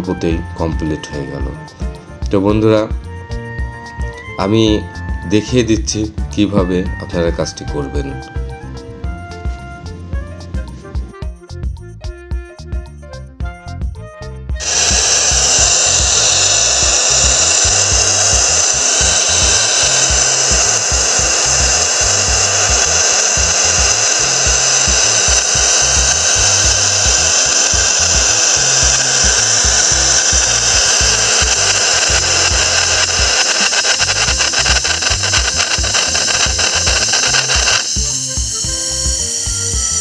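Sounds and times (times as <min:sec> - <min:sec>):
background music with low beat: 0:00.0 - 0:31.3, 0:37.9 - 0:40.0
pressurised gas hissing through tubing: 0:14.6 - 0:40.0.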